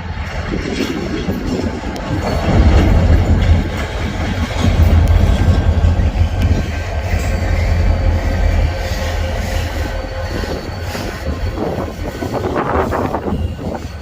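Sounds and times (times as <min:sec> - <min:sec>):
freight train rumbling past: 0:00.0 - 0:14.0
faint wheel squeal: 0:06.7 - 0:14.0.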